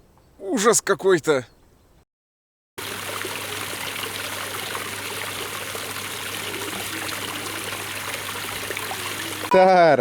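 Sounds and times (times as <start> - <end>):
trickling water hiss: 2.8 - 9.5.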